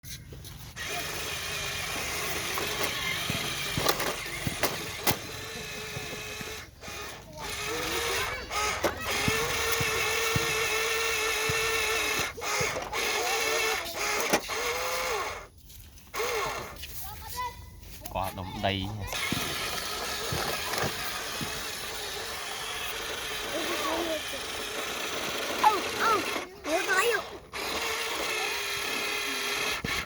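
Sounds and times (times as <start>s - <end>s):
electric motor and gearbox whining: 0.1s - 17.2s, 18.0s - 30.0s.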